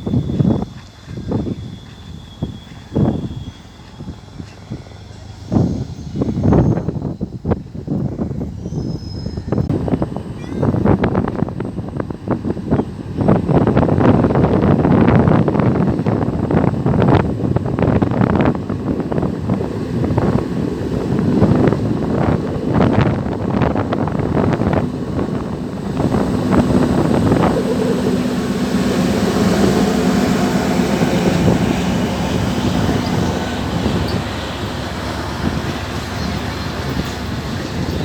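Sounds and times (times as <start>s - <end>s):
train hiss: 0.0s - 10.3s, 17.7s - 38.0s
train engine rumble and hum: 0.0s - 38.0s
train knocks and clatter: 29.0s - 38.0s.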